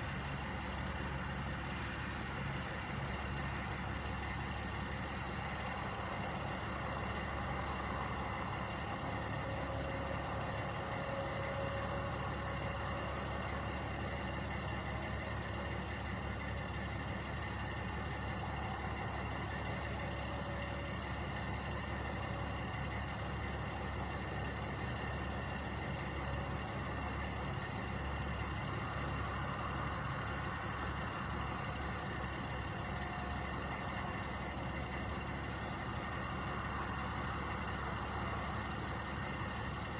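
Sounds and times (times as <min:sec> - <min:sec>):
truck engines idling: 0:00.0 - 0:39.9.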